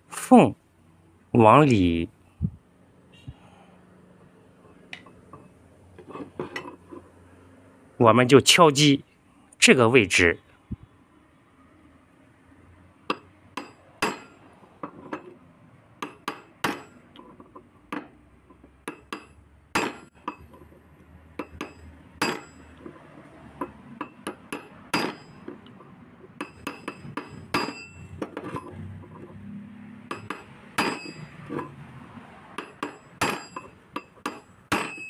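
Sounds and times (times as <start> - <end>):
hammer tapping on metal: 13.1 - 15.3, 16.0 - 17.3, 17.9 - 20.5, 21.4 - 22.8, 23.6 - 25.7, 26.3 - 28.6, 30.0 - 31.7, 32.5 - 35.0.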